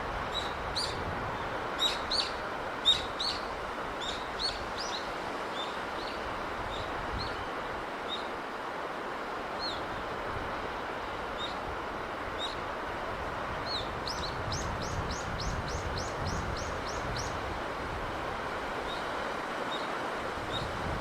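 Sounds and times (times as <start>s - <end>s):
sea breeze rushing: 0.0s - 21.0s
small bird calling: 1.8s - 7.5s.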